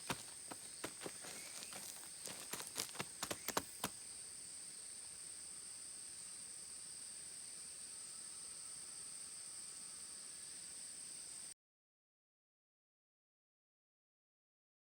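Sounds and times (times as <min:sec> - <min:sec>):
insects chirring: 0:00.0 - 0:11.5.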